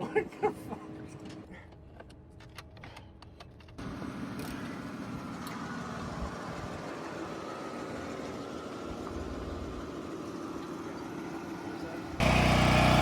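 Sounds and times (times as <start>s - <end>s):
vehicle engine running: 3.8s - 13.0s.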